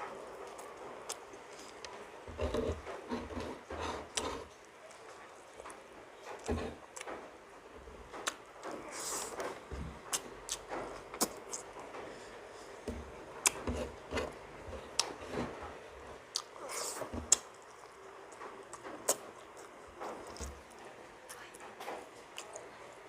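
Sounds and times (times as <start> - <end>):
person chewing food: 0.3 - 4.6, 8.2 - 12.2, 12.8 - 21.6.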